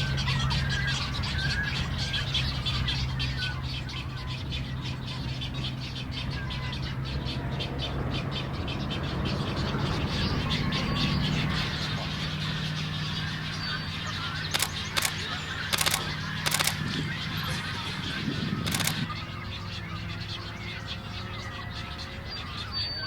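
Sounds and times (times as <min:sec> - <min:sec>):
birds chattering: 0:00.0 - 0:23.0
sharp rasping sounds: 0:14.6 - 0:16.8.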